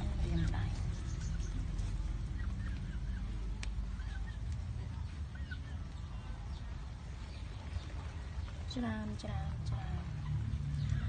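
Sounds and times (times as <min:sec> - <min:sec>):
birds chirping: 0:00.0 - 0:11.0
steady low rumble: 0:00.0 - 0:11.0.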